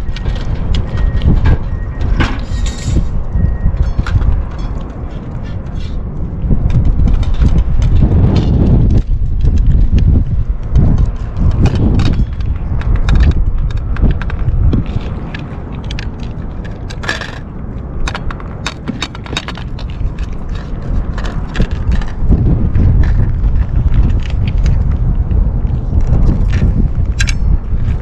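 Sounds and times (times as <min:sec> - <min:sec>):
wind buffeting microphone: 0:00.0 - 0:28.0
light clicks and scrapes: 0:03.8 - 0:06.1, 0:06.7 - 0:28.0.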